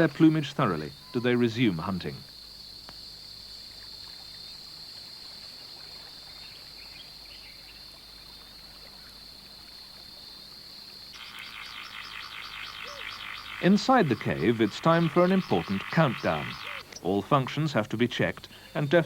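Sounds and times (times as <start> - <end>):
faint background hiss: 0.0 - 19.0
high-pitched insect drone: 11.2 - 16.8.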